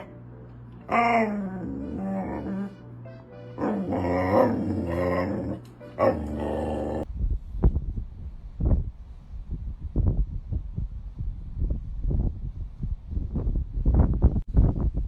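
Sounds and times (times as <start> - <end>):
music: 0.0 - 7.0
dog howling: 0.9 - 2.8, 3.6 - 7.1
low thumps and rumbling: 7.0 - 15.0.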